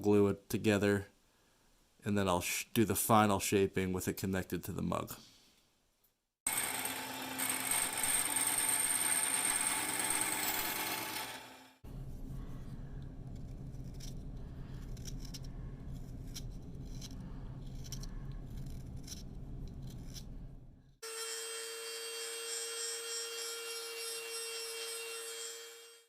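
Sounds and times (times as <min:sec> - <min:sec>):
high-pitched power tool whine: 0:06.5 - 0:11.8, 0:21.0 - 0:26.0
power tool humming: 0:06.5 - 0:11.8.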